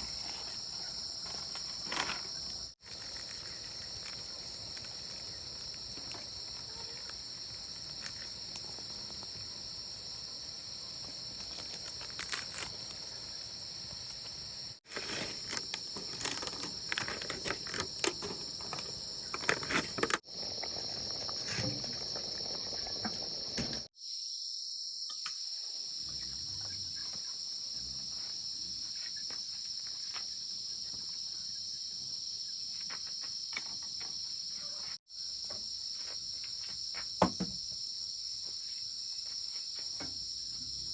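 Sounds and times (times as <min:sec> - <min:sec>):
insects chirping: 0:00.0 - 0:40.9
rustling and snaps from handling: 0:11.4 - 0:13.0.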